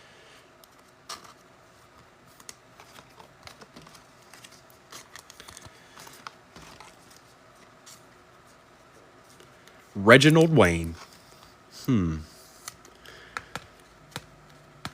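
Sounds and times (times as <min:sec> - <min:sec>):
cards clicking and tapping: 0:12.6 - 0:14.9.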